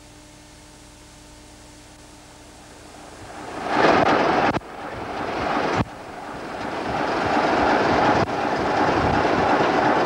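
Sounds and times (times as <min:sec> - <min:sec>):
train rumbling on track: 0:02.6 - 0:10.0.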